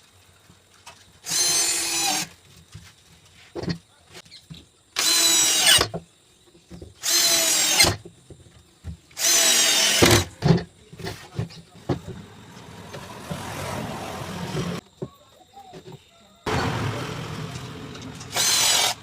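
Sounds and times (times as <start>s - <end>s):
power drill running: 1.2s - 2.3s, 5.0s - 5.9s, 7.0s - 8.0s, 9.2s - 10.3s, 16.5s - 19.0s.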